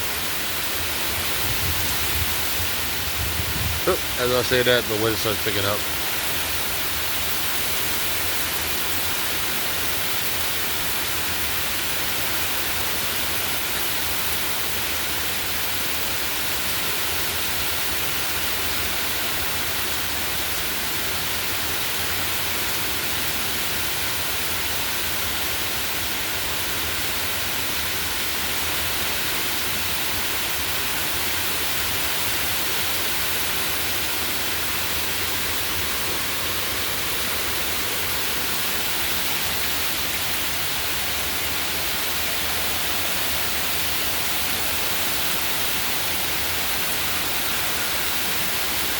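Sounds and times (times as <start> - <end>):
heavy rain pouring: 0.0 - 7.6.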